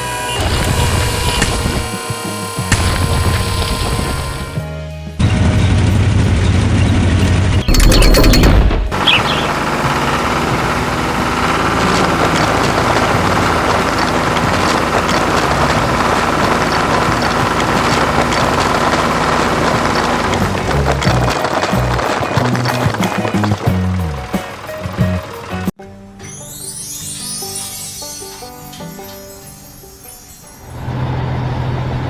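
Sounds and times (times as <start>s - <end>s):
background music: 0.0s - 6.9s, 7.6s - 30.8s
low engine rumble: 0.0s - 25.8s
loud rattling crash: 5.2s - 25.7s.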